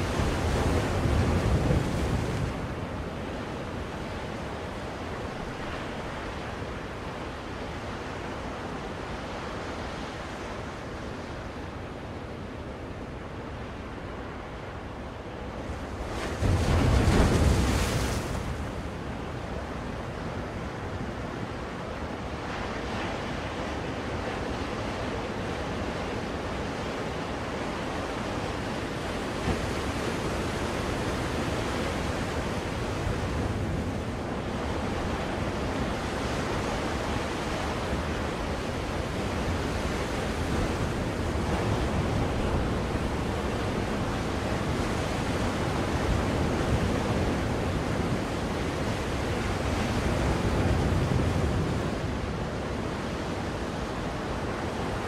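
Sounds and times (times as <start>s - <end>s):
ocean waves rushing: 14.0s - 55.0s.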